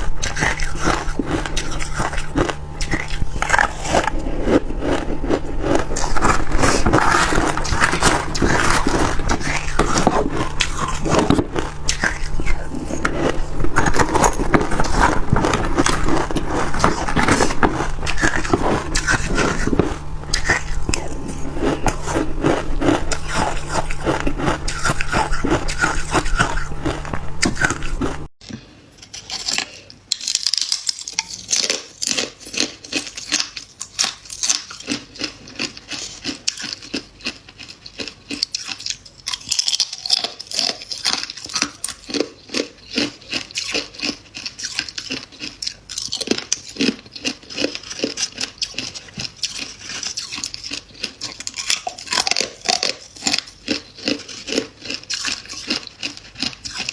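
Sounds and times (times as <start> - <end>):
low hum: 0.0 - 28.6
crunching frost being chewed: 0.0 - 56.9.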